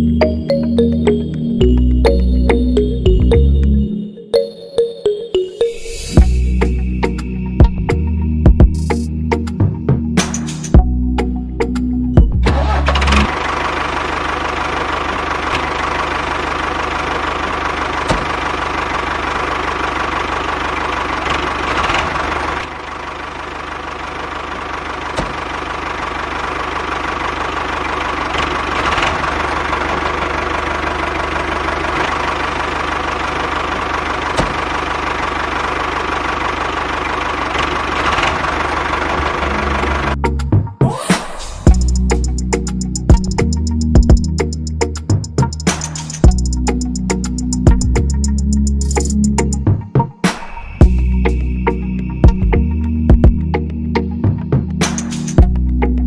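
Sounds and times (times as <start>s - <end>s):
small engine running: 12.5s - 40.2s, 41.6s - 49.6s.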